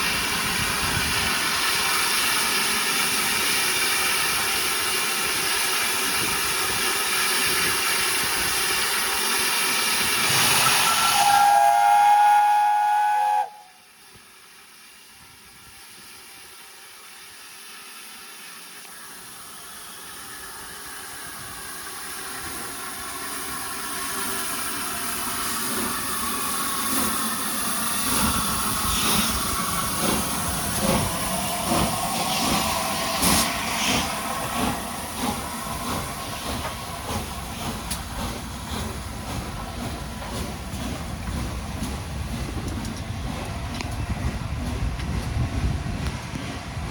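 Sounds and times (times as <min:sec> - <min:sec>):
steam hiss: 0:00.0 - 0:46.2
train noise: 0:00.0 - 0:46.9
steam locomotive whistle: 0:10.4 - 0:13.9.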